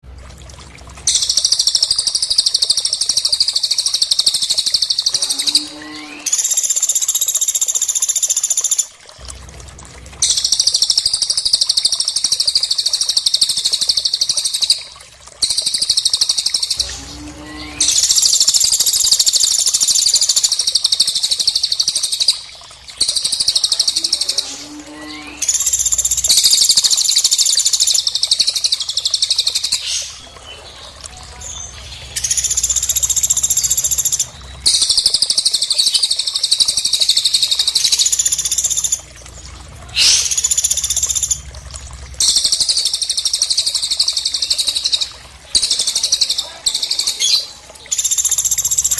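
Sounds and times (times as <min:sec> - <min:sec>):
bird chattering song: 0:01.1 - 0:08.8, 0:23.0 - 0:39.0.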